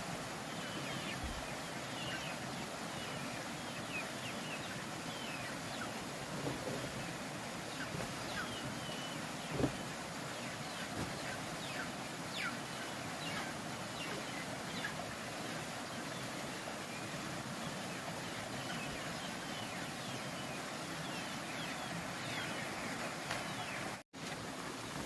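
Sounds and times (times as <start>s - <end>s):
steady background hiss: 0.0s - 25.0s
ducklings peeping: 3.0s - 15.0s.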